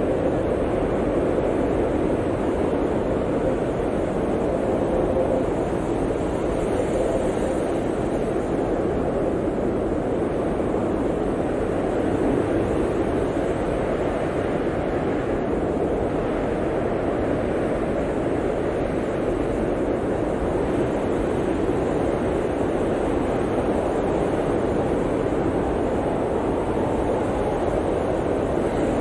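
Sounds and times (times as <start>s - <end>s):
blizzard wind blowing: 0.0s - 29.0s.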